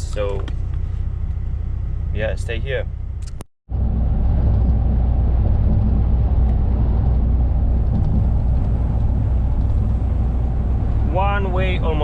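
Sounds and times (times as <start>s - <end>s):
road noise: 0.0s - 12.0s
lorry engine drone: 2.9s - 12.0s.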